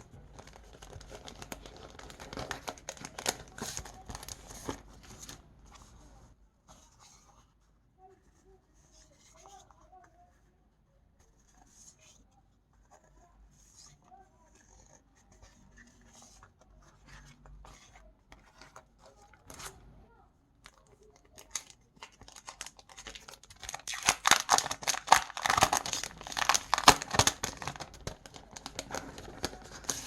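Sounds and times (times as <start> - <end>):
paper sheets crinkling and tearing: 0.3 - 5.4, 21.3 - 30.0
stickers tapping and rustling: 20.6 - 30.0.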